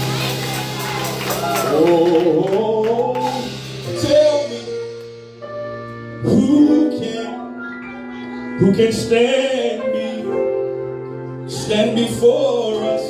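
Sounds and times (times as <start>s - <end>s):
sustained keyboard chords: 0.0s - 13.0s
person singing wordless vocal run: 1.7s - 5.1s.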